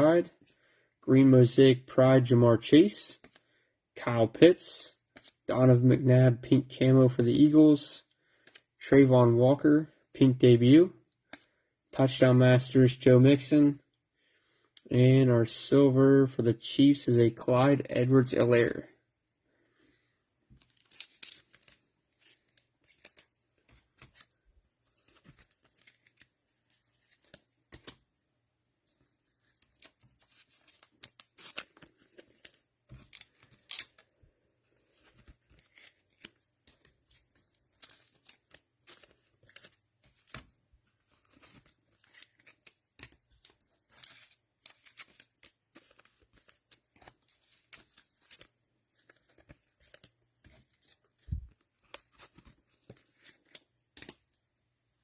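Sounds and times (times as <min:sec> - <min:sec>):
cards and wrappers rustling: 0:20.5 - 0:28.0, 0:28.8 - 0:54.4.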